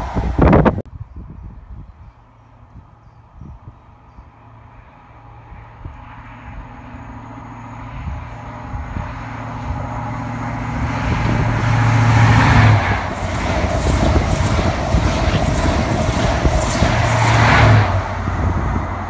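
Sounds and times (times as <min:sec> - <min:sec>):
rushing train wheel noise: 0:00.0 - 0:00.8, 0:05.2 - 0:19.0
diesel engine drone: 0:03.8 - 0:19.0.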